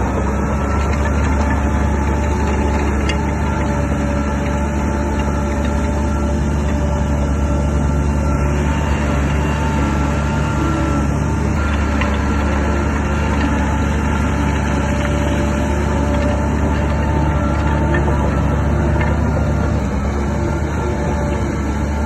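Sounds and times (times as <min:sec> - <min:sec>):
bulldozer diesel engine running: 0:00.0 - 0:22.0.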